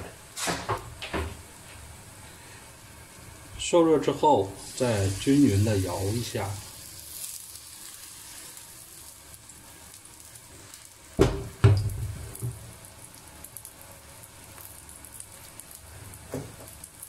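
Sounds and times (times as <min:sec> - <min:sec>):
pancake sizzling in oil: 0:00.3 - 0:17.0
wok knocking on burner grate: 0:11.2 - 0:12.6.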